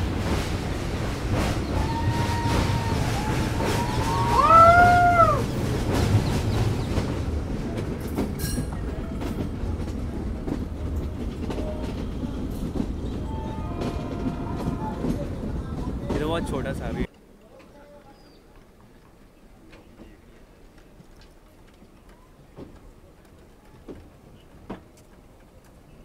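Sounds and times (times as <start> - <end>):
train rumbling: 0.0 - 17.1, 18.6 - 26.0
wheels clicking over rail joints: 0.0 - 26.0
train horn blast: 13.2 - 15.3.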